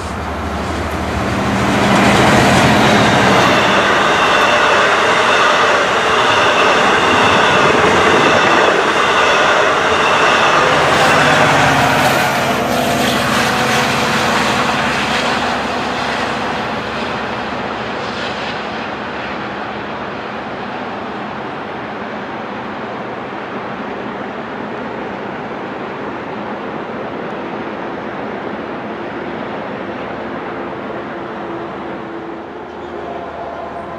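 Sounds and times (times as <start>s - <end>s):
train running on rails: 0.0s - 33.9s.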